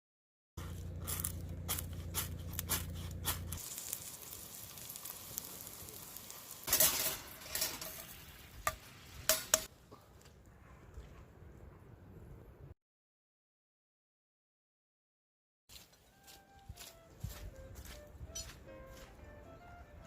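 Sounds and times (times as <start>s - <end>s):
food sizzling: 0.8s - 9.7s
wood fire crackling pops: 1.1s - 9.7s.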